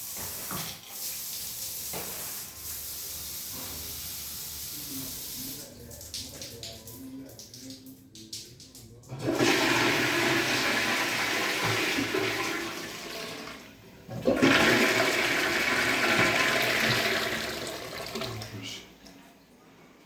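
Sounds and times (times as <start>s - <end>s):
water rushing through pipes: 9.1s - 18.7s.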